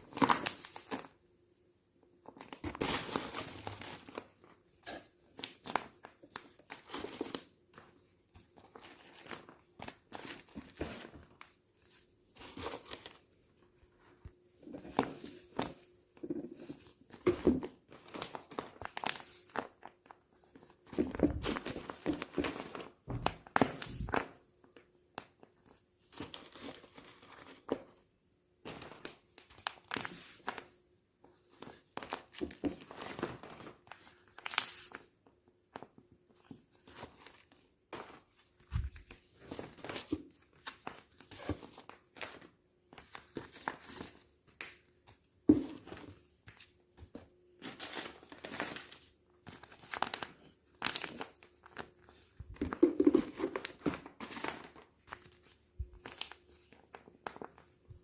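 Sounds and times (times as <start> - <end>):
plastic packaging crinkling: 47.6 - 57.9.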